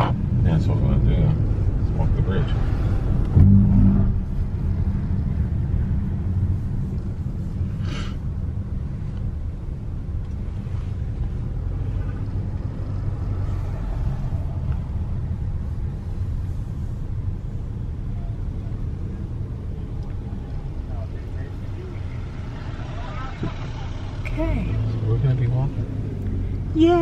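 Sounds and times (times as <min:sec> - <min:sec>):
car driving low rumble: 0:00.0 - 0:27.0.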